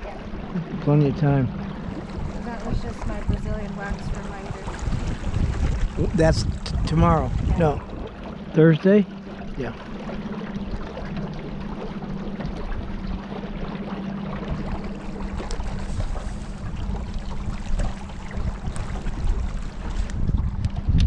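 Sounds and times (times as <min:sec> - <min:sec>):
boat motor droning: 0:00.0 - 0:21.0
water rushing past hull: 0:00.0 - 0:21.0
wind noise: 0:01.6 - 0:08.2, 0:14.4 - 0:21.0.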